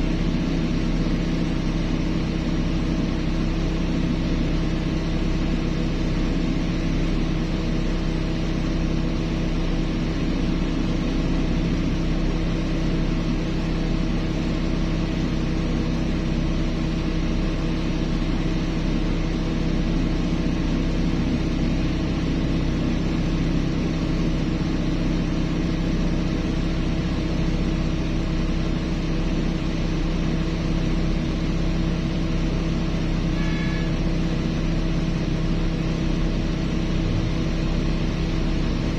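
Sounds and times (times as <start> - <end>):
heavy diesel engine humming: 0.0 - 38.9
faint higher tone: 33.4 - 34.0.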